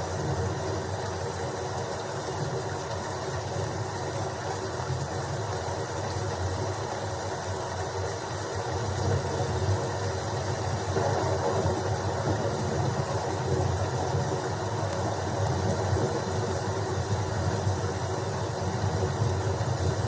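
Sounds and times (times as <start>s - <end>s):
steady rain: 0.0s - 20.0s
low rumble: 10.7s - 17.3s.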